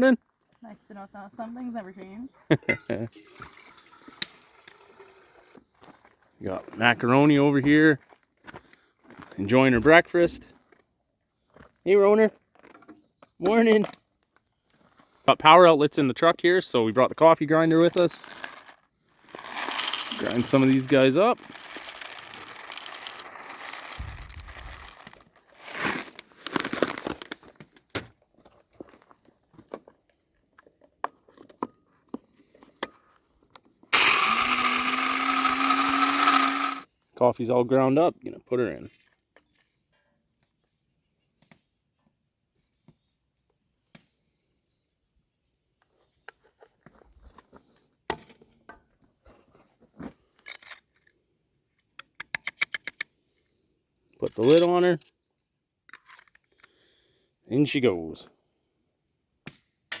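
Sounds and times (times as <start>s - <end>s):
electric coffee grinder: 19.4s - 25.2s, 34.0s - 36.9s
percolator parts clicking: 34.0s - 36.8s.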